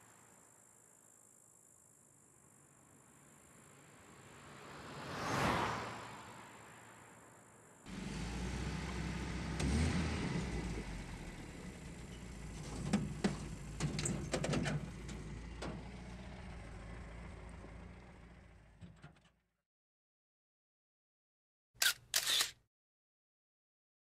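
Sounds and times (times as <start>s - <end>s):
car engine running: 7.9s - 18.8s
sharp clicks and knocks: 12.6s - 15.9s.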